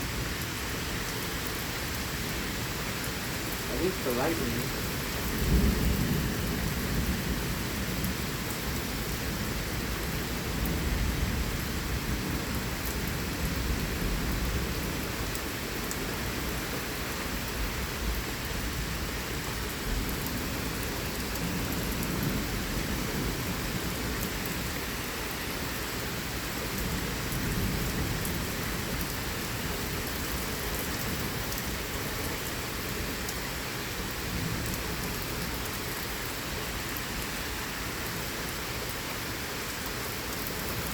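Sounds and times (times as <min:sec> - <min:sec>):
steady rain falling: 0:00.0 - 0:40.9
thunder rumbling: 0:03.8 - 0:08.1.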